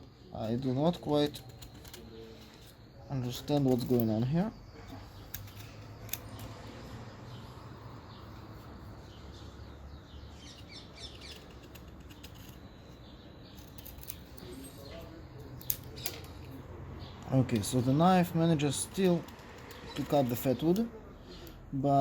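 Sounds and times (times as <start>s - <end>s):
birds chirping: 0.0s - 22.0s
sharp wood clicks and cracks: 10.4s - 14.5s.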